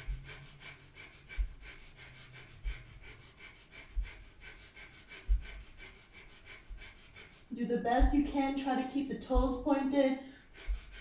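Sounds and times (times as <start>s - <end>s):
rapid forceful nose breathing: 0.0s - 7.5s, 10.3s - 11.0s.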